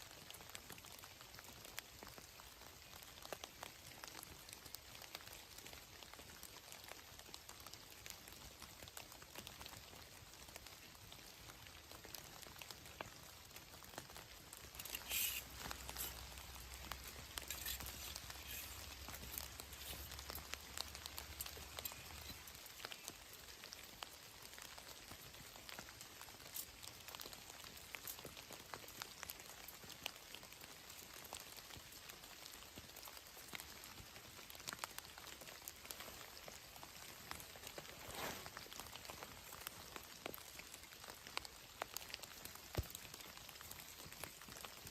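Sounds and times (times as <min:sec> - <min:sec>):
faint rain pattering: 0:00.0 - 0:44.9
brief rustles: 0:14.7 - 0:20.2.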